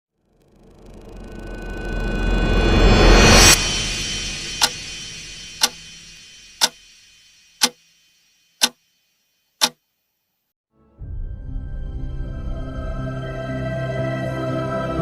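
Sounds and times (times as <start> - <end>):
clock ticking: 5.6 - 5.8.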